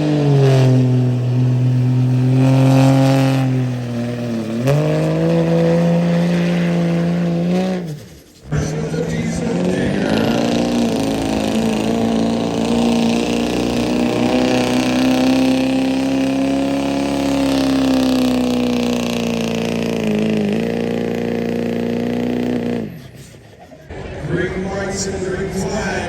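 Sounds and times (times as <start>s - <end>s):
truck engine at high revs: 0.0s - 26.0s.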